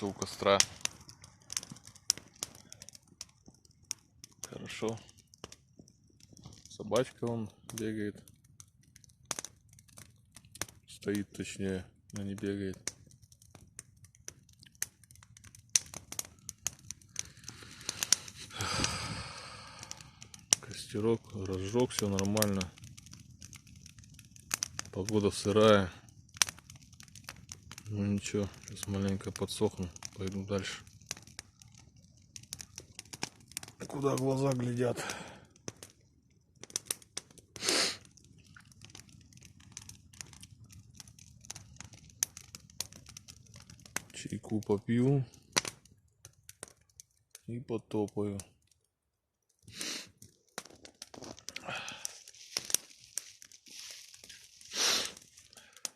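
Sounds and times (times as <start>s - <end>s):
campfire crackling: 0.0s - 55.9s
brief hiss: 54.7s - 55.2s.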